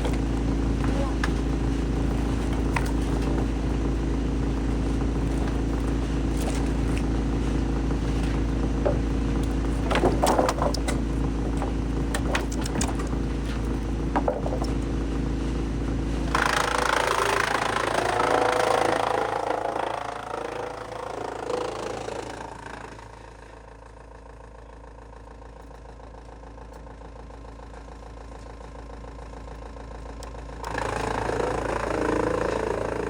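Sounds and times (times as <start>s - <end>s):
knocks and clatters: 0.0s - 15.1s
rough grinding noise: 0.0s - 23.6s, 30.6s - 33.0s
wood shredder engine hum: 0.0s - 33.0s.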